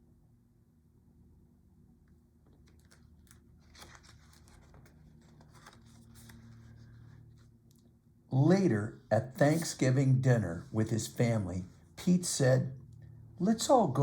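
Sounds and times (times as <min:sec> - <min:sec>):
paper rustling and crinkling: 0:02.5 - 0:07.5.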